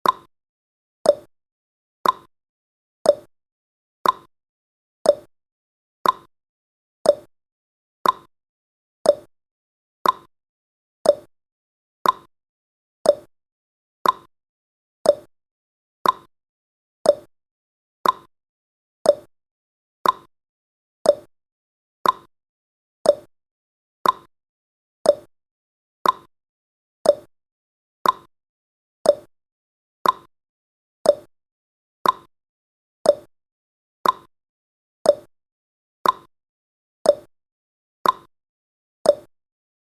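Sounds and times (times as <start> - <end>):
clock ticking: 2.0 - 2.3, 4.0 - 4.3, 6.0 - 6.3, 8.0 - 8.3, 10.0 - 10.3, 12.0 - 12.3, 14.0 - 14.3, 15.1 - 15.3, 16.0 - 16.3, 18.0 - 18.3, 20.0 - 20.3, 22.0 - 22.3, 24.0 - 24.3, 25.1 - 25.3, 26.0 - 26.3, 27.1 - 27.3, 28.0 - 28.3, 29.1 - 29.3, 30.0 - 30.3, 32.0 - 32.3, 33.1 - 33.3, 34.0 - 34.3, 36.0 - 36.3, 38.0 - 38.3.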